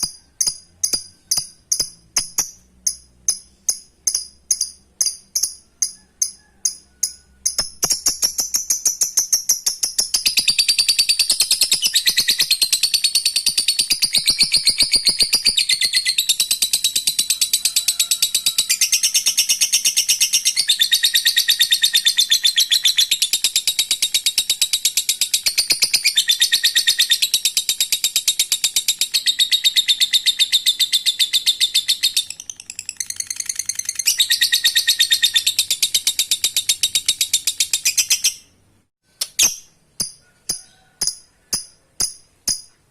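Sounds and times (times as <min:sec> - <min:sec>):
lovebird rapid chatter: 0:00.0 - 0:38.5.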